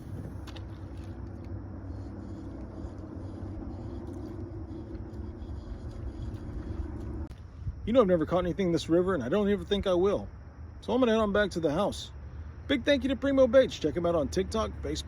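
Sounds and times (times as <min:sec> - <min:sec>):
small boat motor humming: 0:00.0 - 0:07.3.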